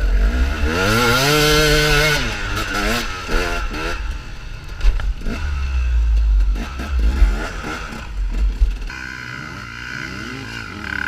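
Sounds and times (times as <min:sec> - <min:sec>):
motorcycle engine revving: 0:00.0 - 0:11.0
heavy low rumble: 0:00.3 - 0:08.9.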